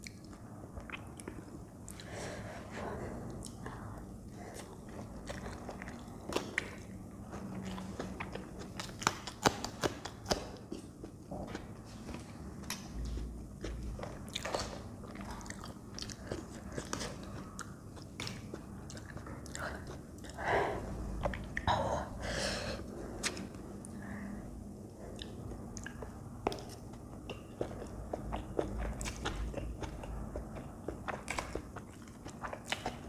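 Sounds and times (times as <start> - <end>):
chewing noodles: 2.8 - 20.5, 25.0 - 33.0.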